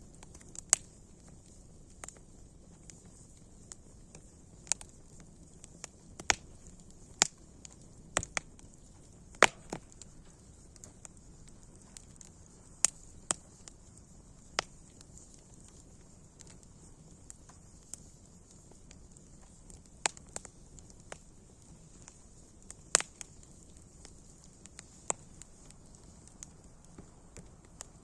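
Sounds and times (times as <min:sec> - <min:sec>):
hiss of flames: 0:00.0 - 0:28.0
wood fire crackling: 0:00.0 - 0:28.0.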